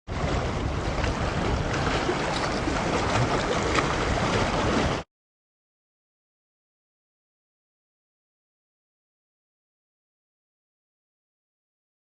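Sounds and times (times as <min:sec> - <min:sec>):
wind buffeting microphone: 0:00.1 - 0:05.0.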